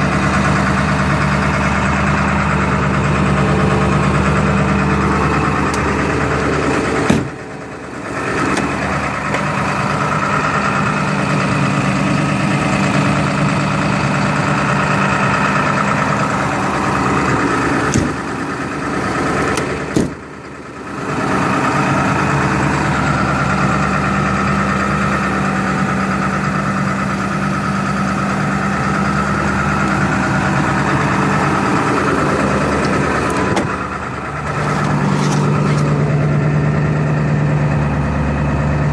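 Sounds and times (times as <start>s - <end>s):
diesel engine idling: 0.0s - 38.9s
sharp engine knocks: 6.9s - 7.5s, 8.4s - 9.5s, 17.8s - 18.4s, 19.4s - 20.3s, 32.7s - 33.9s.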